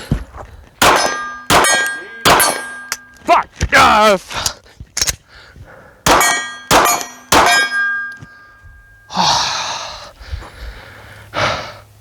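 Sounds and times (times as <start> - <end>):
pistol shots: 0.8 - 3.1, 6.0 - 8.1
bullet pinging steel target: 0.8 - 3.2, 6.0 - 9.0
breathy noise rushes: 9.1 - 11.9.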